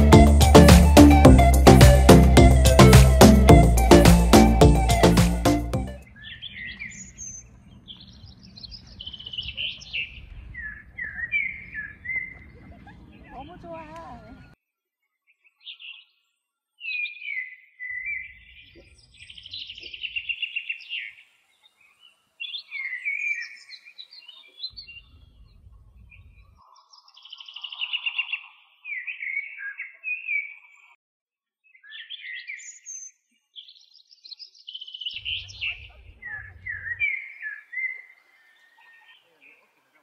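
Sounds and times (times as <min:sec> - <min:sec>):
songbird warbling with trills: 0:35.0 - 0:39.6.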